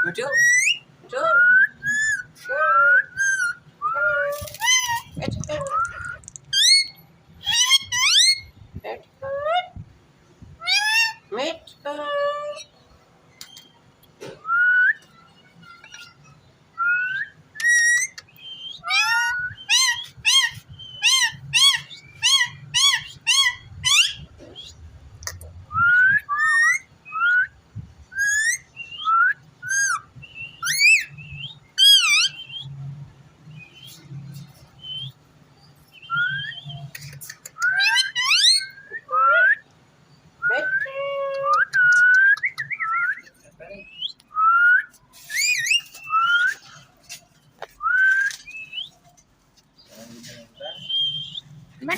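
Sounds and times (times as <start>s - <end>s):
parakeet whistling: 28.2s - 31.1s.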